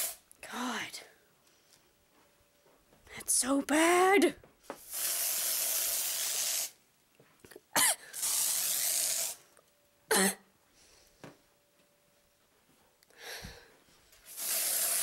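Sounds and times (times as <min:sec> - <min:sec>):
aerosol spray hissing: 0:00.0 - 0:00.2, 0:04.8 - 0:06.8, 0:08.2 - 0:09.4, 0:14.2 - 0:15.0
person coughing: 0:07.5 - 0:08.2, 0:10.1 - 0:10.5.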